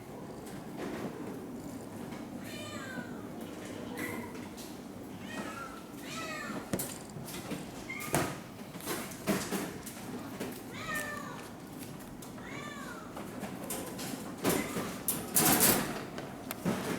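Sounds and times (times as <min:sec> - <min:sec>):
cat meowing: 0:10.7 - 0:11.4.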